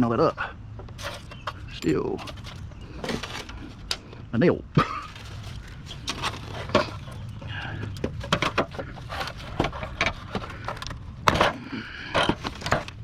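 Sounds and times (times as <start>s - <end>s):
debris clattering: 1.0s - 3.9s, 4.8s - 13.0s
small debris clicking and clinking: 5.0s - 13.0s.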